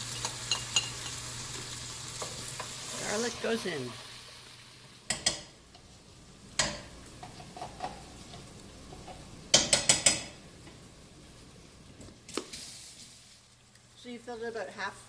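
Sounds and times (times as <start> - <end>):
faint sizzle: 0.0 - 15.0.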